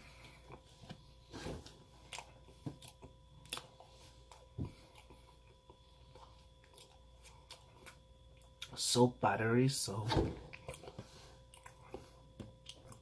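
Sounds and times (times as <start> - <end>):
chewing croissant: 1.6 - 8.8, 10.5 - 13.0.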